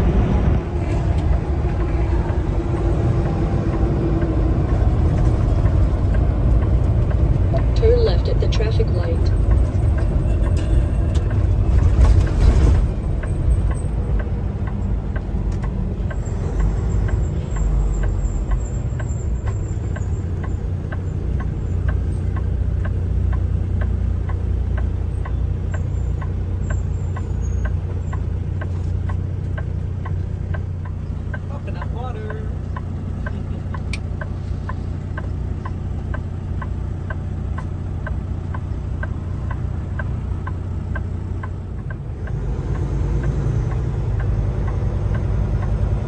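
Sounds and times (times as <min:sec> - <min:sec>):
truck engine and road noise: 0:00.0 - 0:46.0
faint regular ticking: 0:13.1 - 0:46.0.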